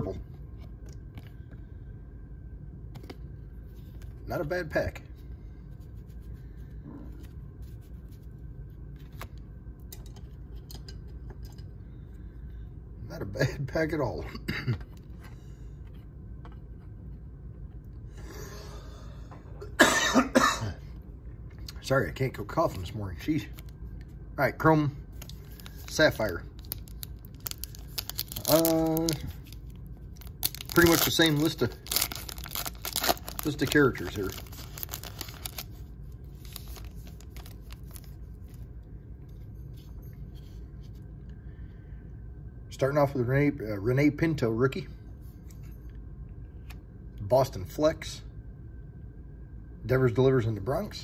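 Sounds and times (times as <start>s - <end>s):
low steady hum: 0.0s - 51.0s
person coughing: 14.3s - 14.9s, 19.6s - 20.9s
card packs rustling: 25.1s - 38.2s.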